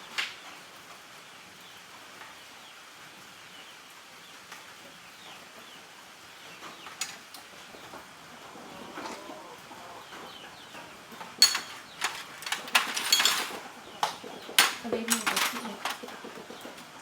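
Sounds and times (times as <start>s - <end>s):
chickens clucking faintly: 4.8s - 17.0s.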